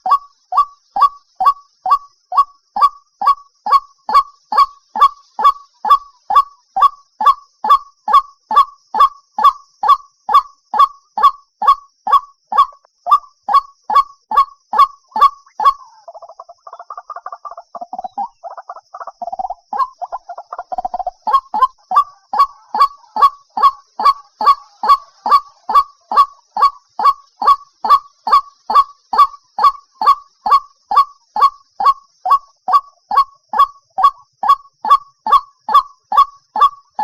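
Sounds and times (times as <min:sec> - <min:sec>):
waterhen calling: 0:00.0 - 0:37.0.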